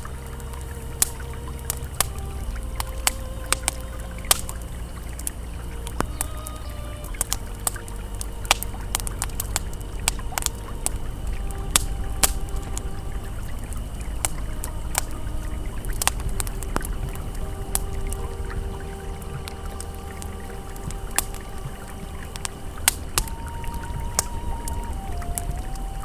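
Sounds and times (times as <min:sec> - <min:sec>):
campfire crackling and popping: 0:00.0 - 0:26.0
faint held ambient tones: 0:00.0 - 0:26.0
river flowing: 0:00.0 - 0:26.0.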